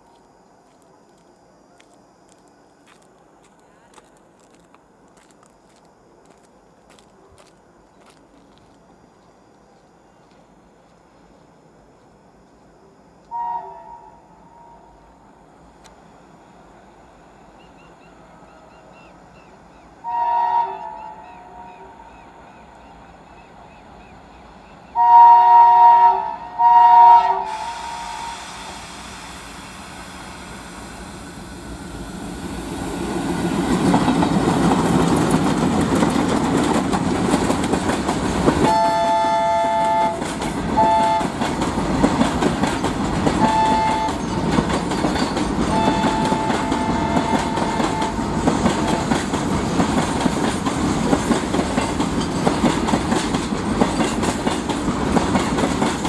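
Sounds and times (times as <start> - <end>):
train rumble and wheel clatter: 0.0 - 12.7, 28.4 - 56.0
locomotive horn blasts: 20.0 - 21.7, 25.0 - 28.4, 38.7 - 41.4, 43.4 - 44.3, 45.7 - 48.3.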